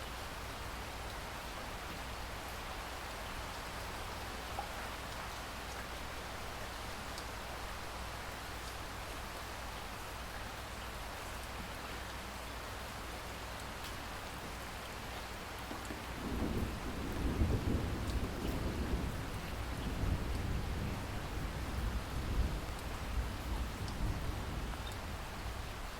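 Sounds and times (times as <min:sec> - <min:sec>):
rain falling: 0:00.0 - 0:25.9
low rumble of thunder: 0:16.0 - 0:25.9.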